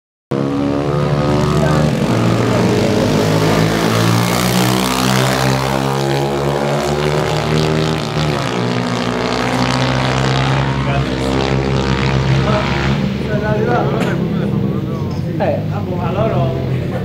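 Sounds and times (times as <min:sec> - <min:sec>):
pit bike engines revving: 0:00.3 - 0:17.0.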